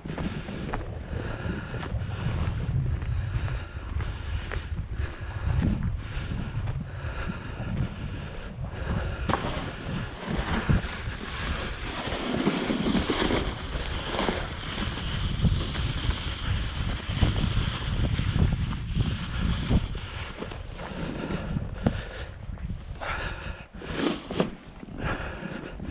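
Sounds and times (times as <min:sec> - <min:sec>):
wind buffeting microphone: 0:00.0 - 0:25.9
snow being shovelled by hand: 0:09.3 - 0:21.2, 0:23.8 - 0:24.8.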